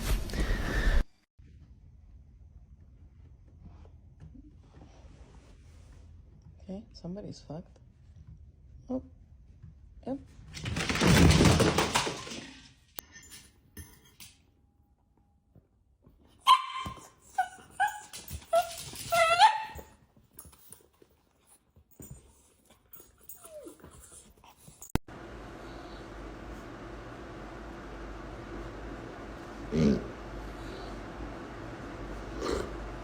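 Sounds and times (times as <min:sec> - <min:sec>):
dog yipping: 0:16.4 - 0:20.0.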